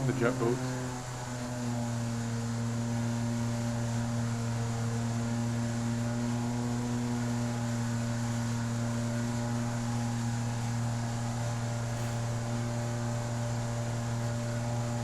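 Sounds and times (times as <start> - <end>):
jet boat motor humming: 0.0 - 15.0.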